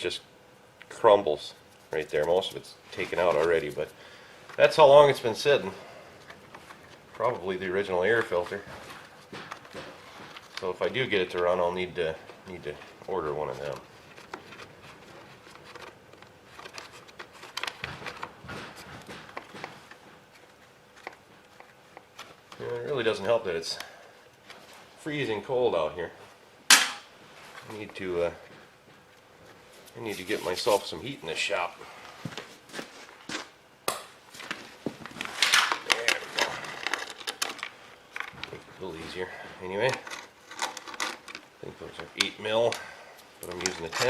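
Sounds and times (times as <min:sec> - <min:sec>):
light clicks and knocks of parts: 0:33.9 - 0:44.0.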